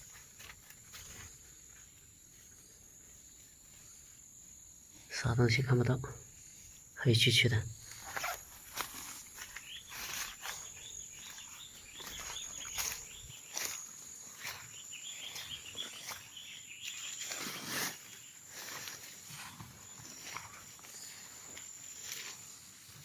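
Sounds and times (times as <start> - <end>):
high-pitched insect trill: 0.0 - 23.0
rustling: 7.8 - 14.6, 15.3 - 23.0
footsteps: 7.9 - 22.5.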